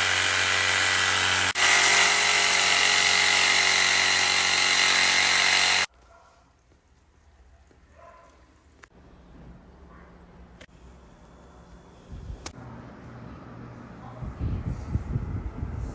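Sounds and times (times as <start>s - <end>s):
small electric motor whining: 0.0s - 5.9s.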